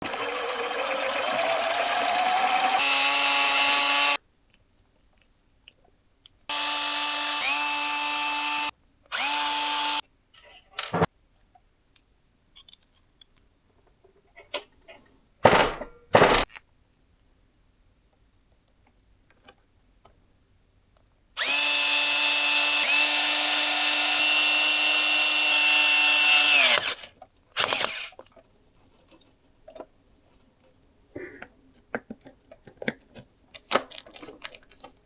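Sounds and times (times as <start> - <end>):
electric motor whining: 0.0 - 4.2, 6.5 - 10.0, 21.4 - 27.0.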